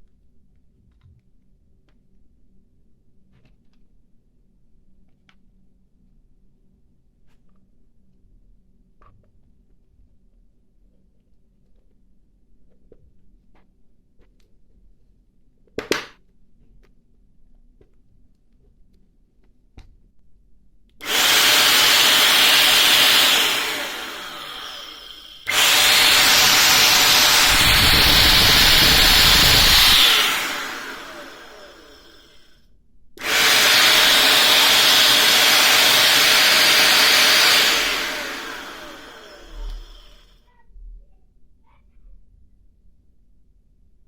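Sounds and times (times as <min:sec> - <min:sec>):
vacuum cleaner motor running: 0:21.0 - 0:32.5, 0:33.2 - 0:40.3.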